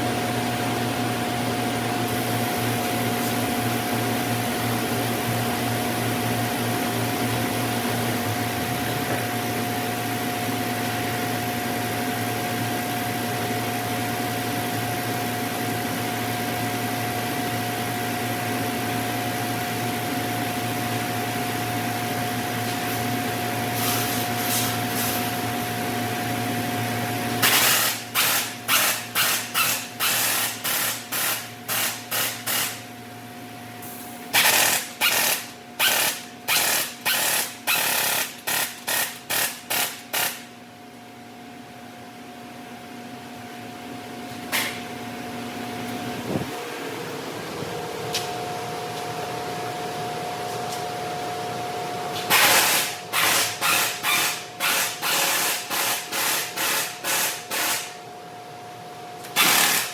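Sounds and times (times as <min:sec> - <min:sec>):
sharp mechanical bursts: 0:27.4 - 0:32.8, 0:34.3 - 0:40.5, 0:52.3 - 0:58.0, 0:59.3 - 0:59.9.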